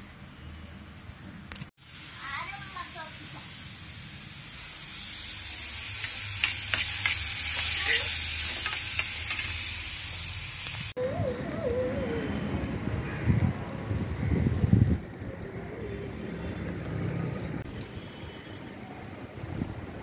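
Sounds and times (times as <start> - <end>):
vegetables sizzling in oil: 1.8 - 11.0
wind buffeting microphone: 11.0 - 15.9.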